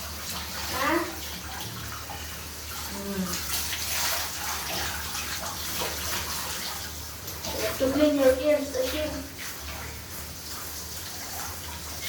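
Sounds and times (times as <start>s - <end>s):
running water splashing: 0.0s - 12.0s.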